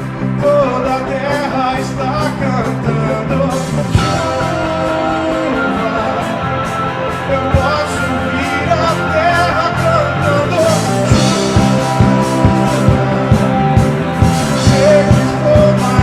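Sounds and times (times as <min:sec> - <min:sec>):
worship band playing: 0:00.0 - 0:16.0
steady drum beat: 0:03.6 - 0:16.0.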